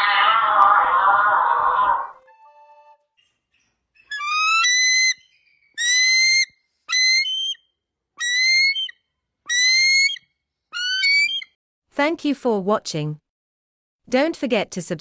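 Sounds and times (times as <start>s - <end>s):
animal whistle-like calls: 4.0s - 7.6s, 8.2s - 10.2s, 10.8s - 11.6s.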